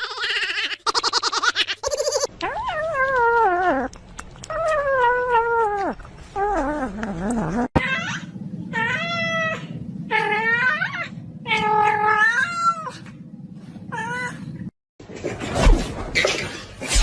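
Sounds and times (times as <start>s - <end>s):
low steady hum: 2.3s - 14.7s.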